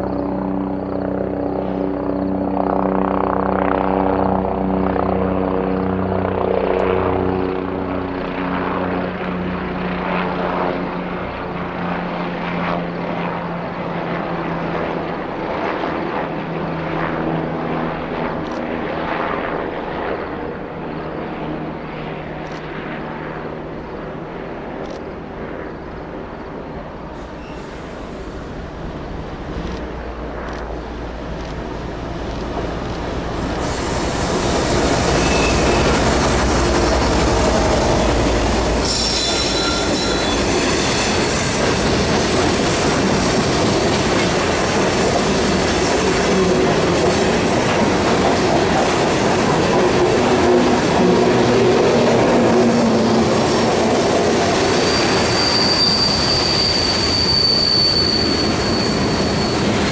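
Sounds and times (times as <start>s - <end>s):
high-pitched flange squeal: 27.2s - 28.5s, 33.6s - 41.8s, 50.8s - 59.9s
train wheels clacking over rails: 31.2s - 59.9s.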